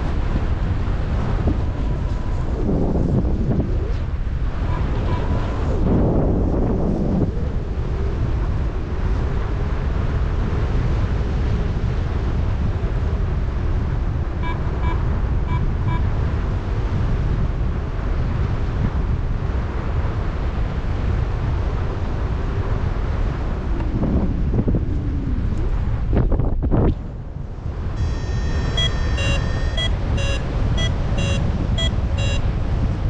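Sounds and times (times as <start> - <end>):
wind rushing over microphone: 0.0 - 33.0
short high beeps: 14.4 - 16.0, 28.0 - 32.5.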